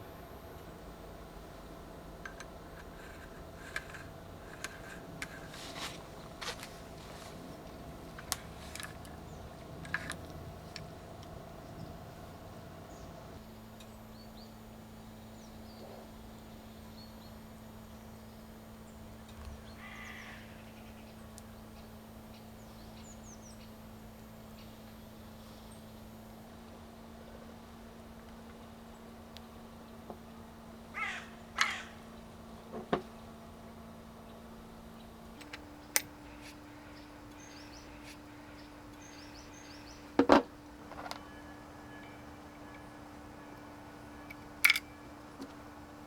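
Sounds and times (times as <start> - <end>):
low steady hum: 0.0 - 46.0.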